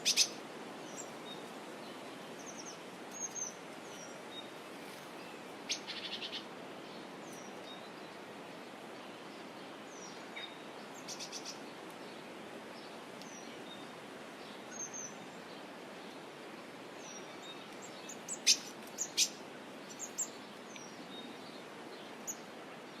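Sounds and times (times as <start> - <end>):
background hiss: 0.0 - 23.0
birds chirping: 17.0 - 21.6.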